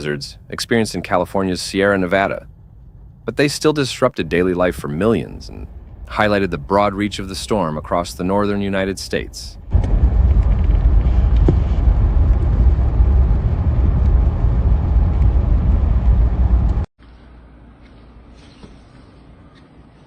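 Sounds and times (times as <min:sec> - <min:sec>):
loud low rumbling: 0:01.8 - 0:03.5, 0:04.2 - 0:08.2, 0:09.5 - 0:16.9.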